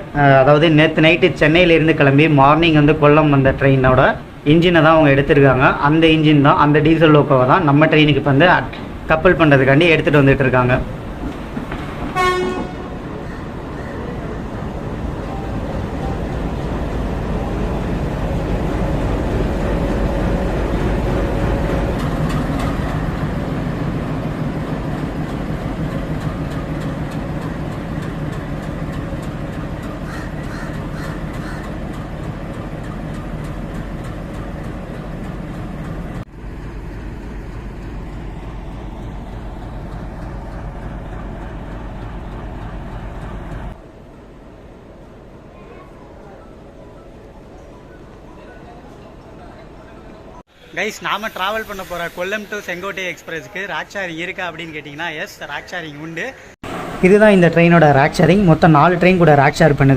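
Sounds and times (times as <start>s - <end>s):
diesel locomotive throbbing drone: 8.2s - 44.0s
crows cawing: 13.1s - 14.4s, 30.0s - 31.8s.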